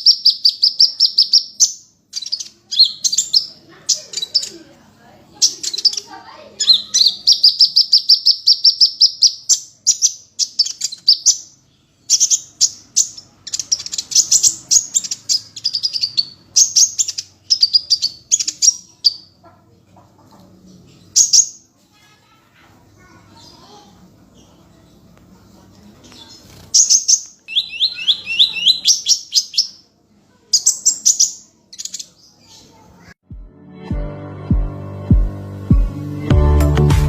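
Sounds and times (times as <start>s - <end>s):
songbird trilling: 0.0s - 4.6s, 5.4s - 19.4s, 26.8s - 29.8s.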